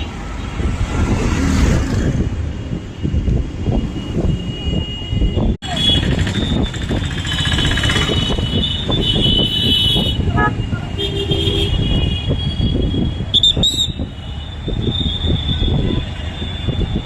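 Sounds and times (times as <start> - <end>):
road traffic rumble: 0.0 - 17.0
vehicle horn toot: 7.3 - 16.8.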